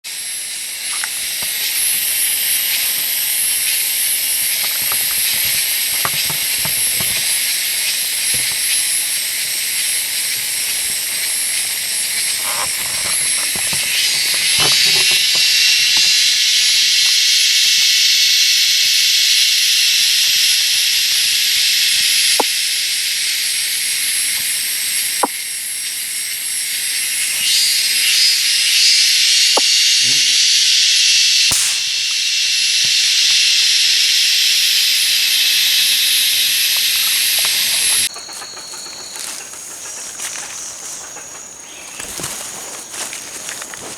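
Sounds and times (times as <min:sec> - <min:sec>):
insects droning: 0:00.0 - 0:43.9
sharp clicks: 0:31.5 - 0:32.1.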